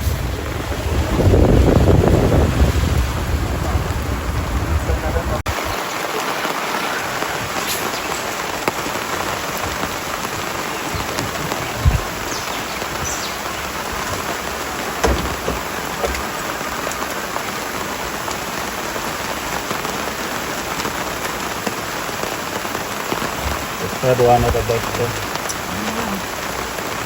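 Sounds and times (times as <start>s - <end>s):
rain falling: 0.0s - 27.0s
short low thumps: 10.8s - 13.2s.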